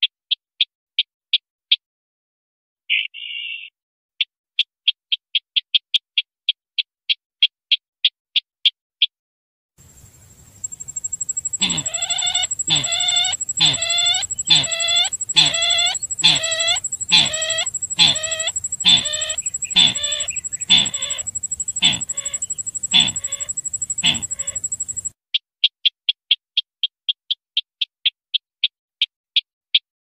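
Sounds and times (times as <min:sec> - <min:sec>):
bird calls played back: 0:02.9 - 0:03.8, 0:10.6 - 0:25.1
short high pips: 0:10.6 - 0:25.1.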